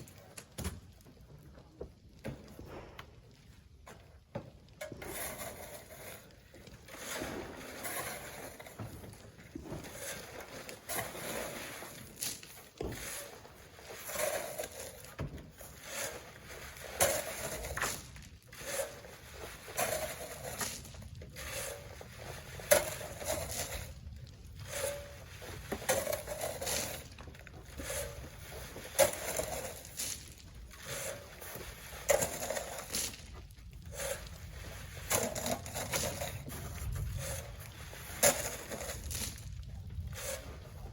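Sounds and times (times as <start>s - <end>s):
shovel scraping in sand: 4.8s - 40.9s
sand load thudding: 6.9s - 23.9s.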